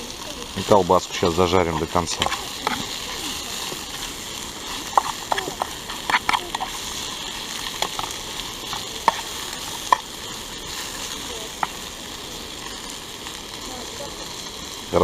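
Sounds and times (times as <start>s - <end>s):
sausage and onion sizzling: 0.0s - 15.0s.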